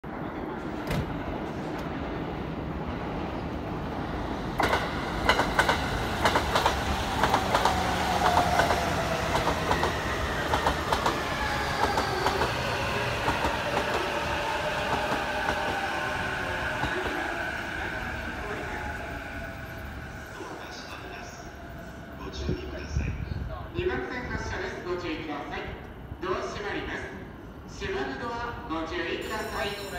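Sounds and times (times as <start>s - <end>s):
train wheels clacking over rail joints: 4.6s - 8.7s.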